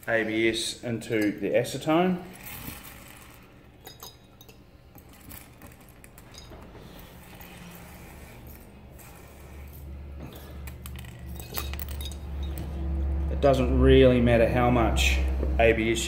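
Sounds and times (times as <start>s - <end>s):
plastic pieces clinking on glass: 10.7s - 12.6s.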